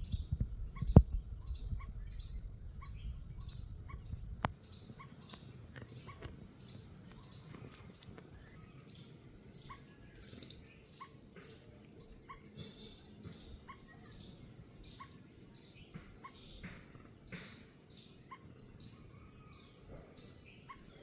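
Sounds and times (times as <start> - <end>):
low background rumble: 0.0 - 5.3
bird chirping: 0.0 - 21.0
faint high-pitched bird calls: 0.0 - 21.0.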